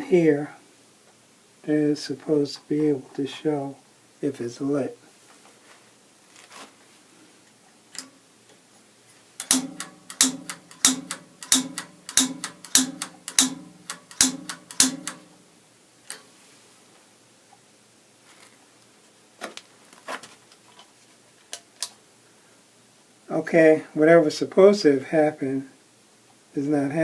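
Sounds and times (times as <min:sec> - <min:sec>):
piezo igniter clicks: 0:07.9 - 0:08.2, 0:09.4 - 0:15.3.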